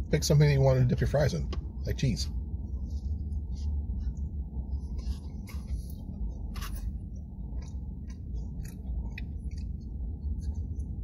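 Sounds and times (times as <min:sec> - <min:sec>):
low rumble: 0:00.0 - 0:11.0
person chewing food: 0:04.1 - 0:11.0.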